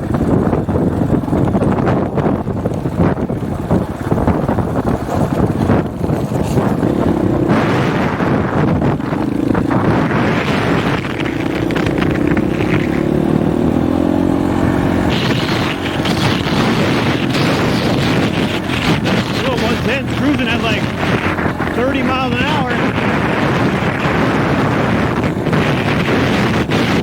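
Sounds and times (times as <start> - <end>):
dirt bike engine running: 0.0 - 27.0
wind buffeting microphone: 0.0 - 27.0.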